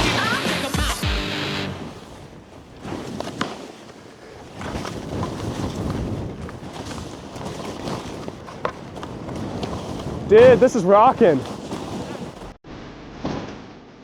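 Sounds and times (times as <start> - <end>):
skis scraping on snow: 0.0 - 12.6
wind rushing over microphone: 4.4 - 12.6.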